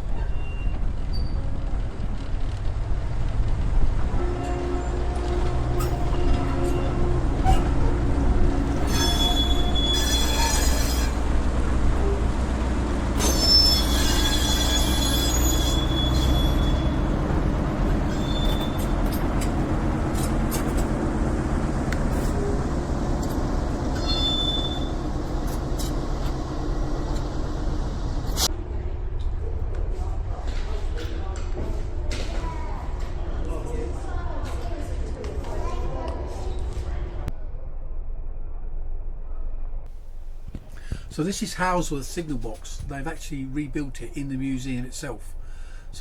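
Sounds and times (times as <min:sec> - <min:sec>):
train wheels squealing on rails: 0:00.0 - 0:01.6, 0:04.2 - 0:20.8, 0:22.1 - 0:27.4
train rumbling: 0:00.0 - 0:29.6, 0:39.9 - 0:46.0.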